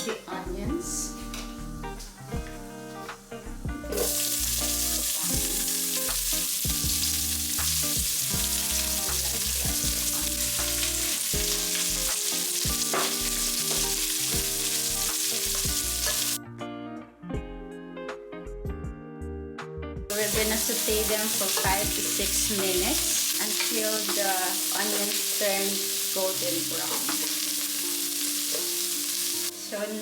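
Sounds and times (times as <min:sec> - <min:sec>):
onions sizzling in hot oil: 0:01.3 - 0:16.4, 0:20.1 - 0:30.0.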